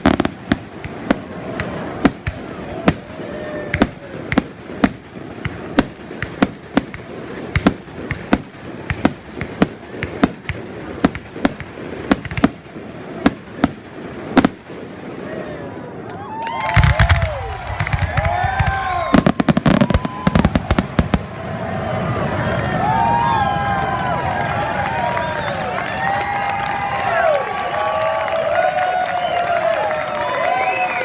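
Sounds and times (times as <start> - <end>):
firework shells bursting: 0.0 - 14.8, 16.1 - 21.4.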